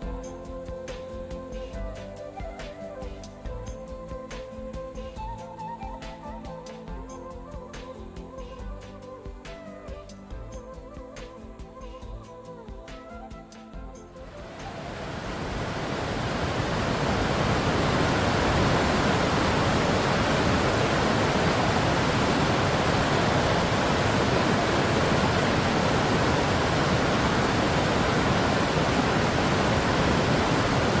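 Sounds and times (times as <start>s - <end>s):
waterfall rushing: 14.3s - 31.0s.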